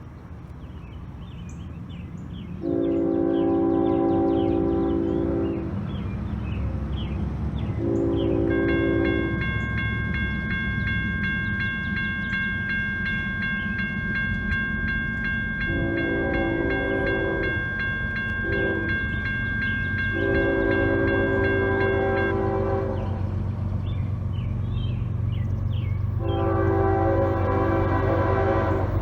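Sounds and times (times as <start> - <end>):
low engine rumble: 0.0 - 29.0
locomotive horn blasts: 2.6 - 5.8, 7.8 - 9.7, 15.6 - 19.2, 20.0 - 23.4, 26.2 - 29.0
crossing bell ringing: 7.8 - 23.4, 26.1 - 29.0.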